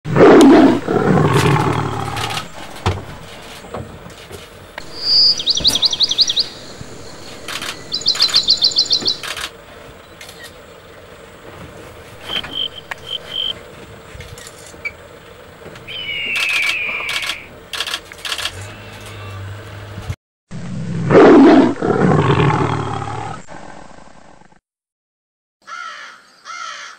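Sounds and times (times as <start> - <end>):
lion low call: 0.1 - 3.5, 15.9 - 17.5
falling bird whistle: 4.8 - 9.3, 12.2 - 13.6, 15.8 - 17.5
short piping bird notes: 4.8 - 9.3, 12.2 - 13.6, 15.8 - 17.5
bird trills: 4.8 - 9.4, 12.2 - 13.6, 15.8 - 17.5.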